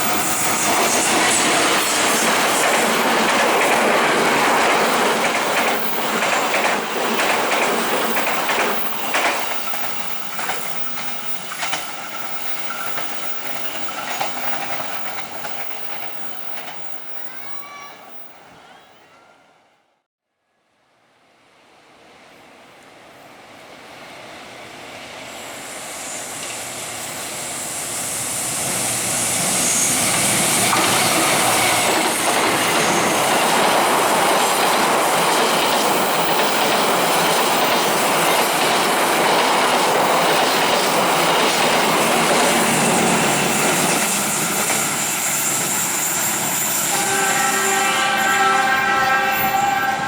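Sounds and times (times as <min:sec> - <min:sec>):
train wheels rumbling on rails: 0:00.0 - 0:17.7, 0:21.9 - 0:50.0
train horn: 0:30.7 - 0:33.0, 0:45.7 - 0:50.0.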